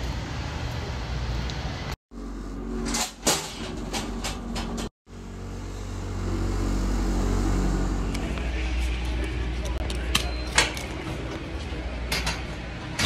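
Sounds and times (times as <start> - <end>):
vehicle engine running: 3.8 - 9.8.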